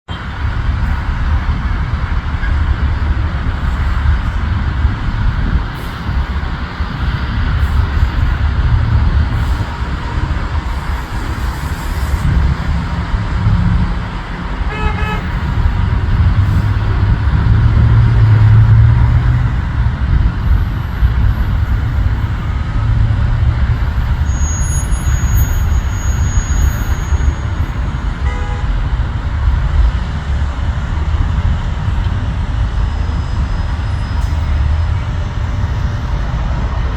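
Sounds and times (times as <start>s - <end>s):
low engine rumble: 0.1s - 36.9s
short horn toot: 14.7s - 15.5s.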